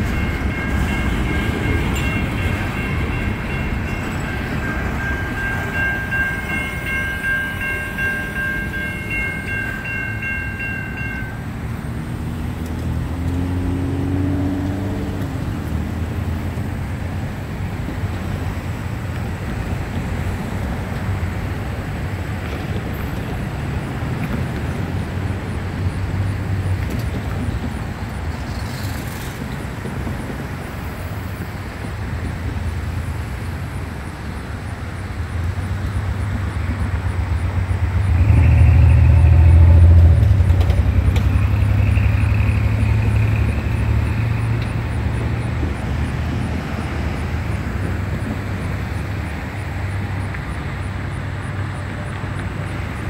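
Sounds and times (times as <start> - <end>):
freight train wheels rumbling: 0.0 - 53.0.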